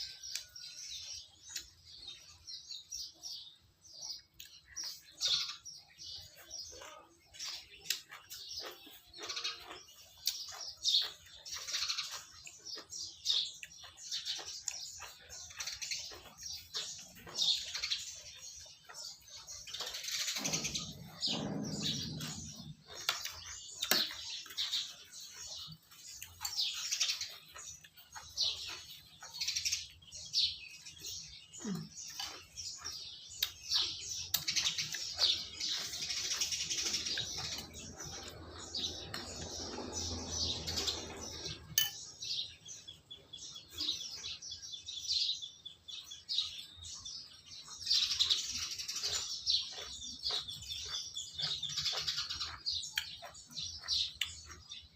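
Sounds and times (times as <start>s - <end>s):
small birds chirping: 0.0s - 54.9s
tableware clinking: 41.8s - 42.1s.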